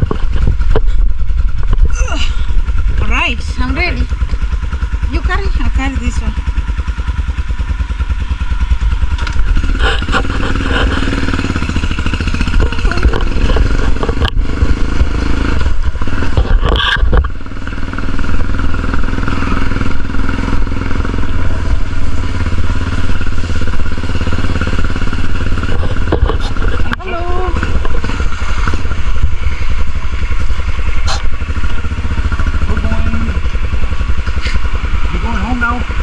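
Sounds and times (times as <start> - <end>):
wind on microphone: 0.0 - 3.3, 9.4 - 34.6
motorcycle engine running: 0.0 - 36.0.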